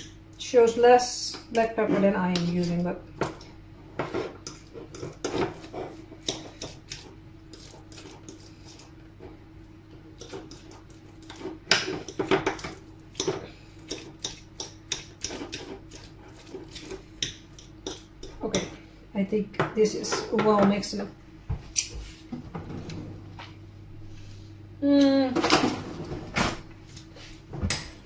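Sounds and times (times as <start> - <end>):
fork scraping a plate: 4.0 - 9.0, 10.2 - 12.2, 13.2 - 18.5.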